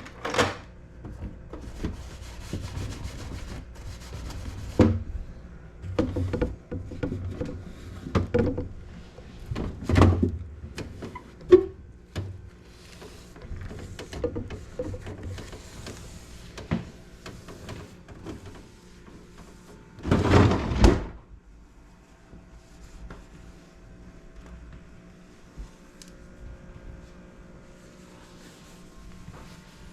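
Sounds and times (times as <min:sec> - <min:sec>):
knocks clunks and rubbing: 0:05.8 - 0:12.4, 0:13.1 - 0:20.9.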